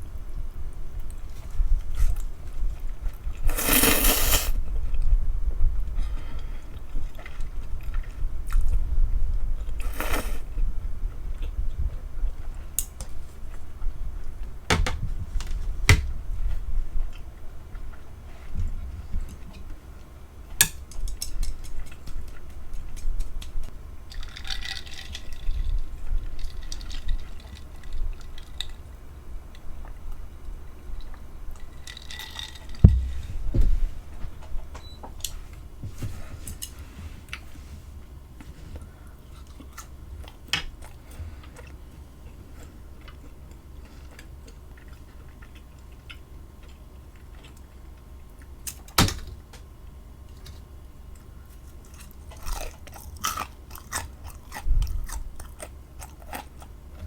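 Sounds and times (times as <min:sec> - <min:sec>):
wet chewing: 0:39.2 - 0:48.6, 0:51.2 - 0:57.0.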